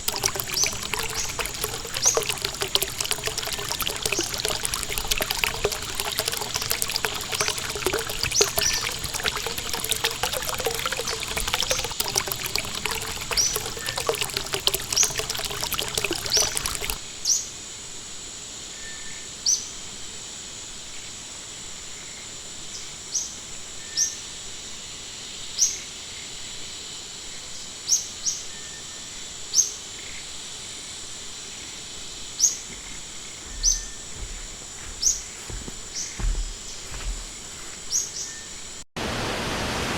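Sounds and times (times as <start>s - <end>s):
rushing stream water: 0.0s - 17.0s, 39.0s - 39.9s.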